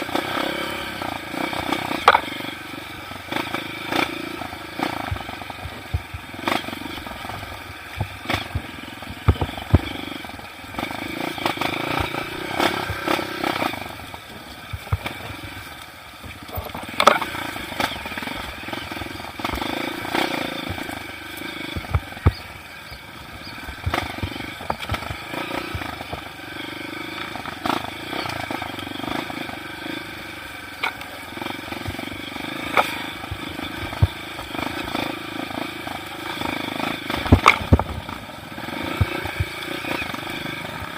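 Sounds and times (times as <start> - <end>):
dirt bike engine revving: 0.0 - 40.9
sharp knocks and rattles: 1.6 - 2.4, 31.8 - 38.2.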